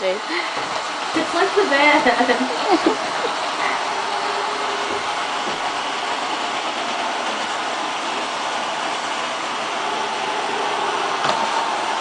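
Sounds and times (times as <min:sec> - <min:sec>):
robot vacuum hissing: 0:00.0 - 0:12.0.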